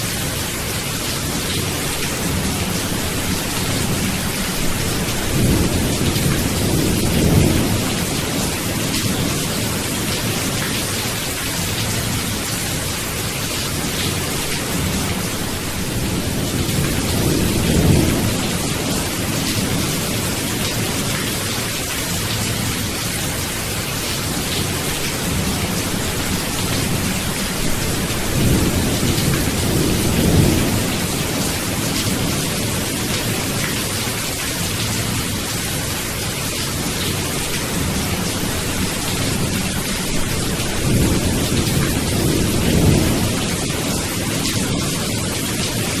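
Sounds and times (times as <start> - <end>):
heavy rain: 0.0 - 46.0
rolling thunder: 2.2 - 10.5, 14.0 - 21.0, 24.6 - 33.6, 37.7 - 45.5.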